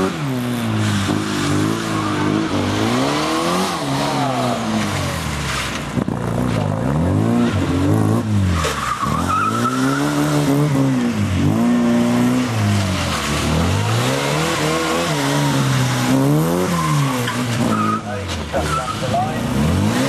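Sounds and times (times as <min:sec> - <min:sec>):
car engine revving: 0:00.0 - 0:20.0
tyre squeal: 0:08.5 - 0:10.6, 0:14.6 - 0:19.3.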